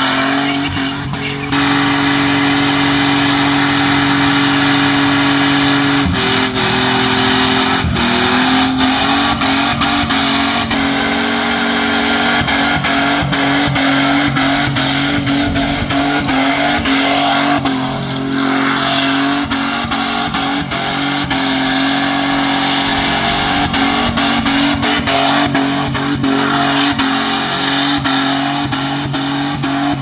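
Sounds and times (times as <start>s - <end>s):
tyres squealing: 0.0s - 2.4s
car engine at high revs: 0.0s - 30.0s
engine crackles: 0.0s - 30.0s.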